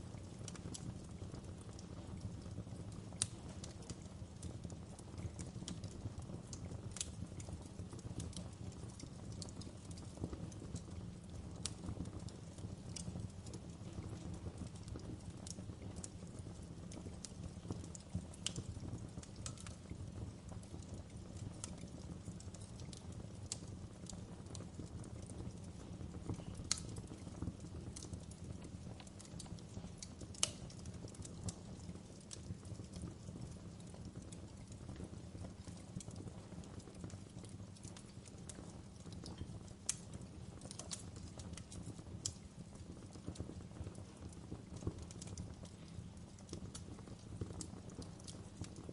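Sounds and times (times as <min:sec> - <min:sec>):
fire crackling: 0:00.0 - 0:48.9
sharp pops and snaps: 0:03.1 - 0:04.5, 0:11.6 - 0:19.9, 0:20.5 - 0:48.9.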